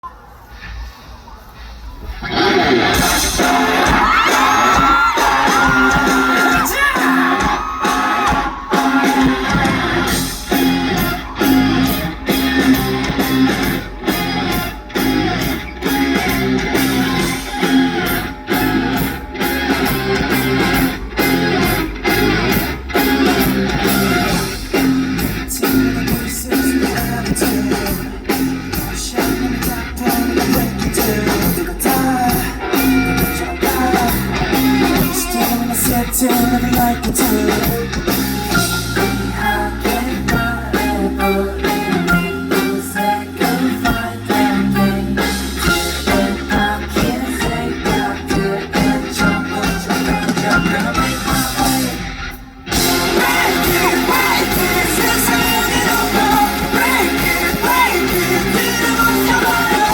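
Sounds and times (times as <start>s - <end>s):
live rock band playing: 2.3s - 59.9s
steady drum beat: 2.6s - 59.9s.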